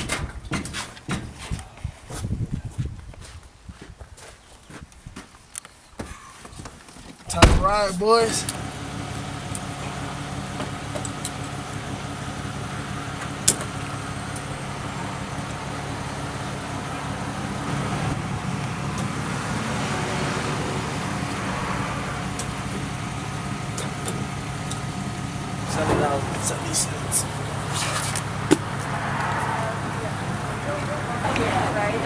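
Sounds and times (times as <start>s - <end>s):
vehicle engine running: 7.3s - 32.0s.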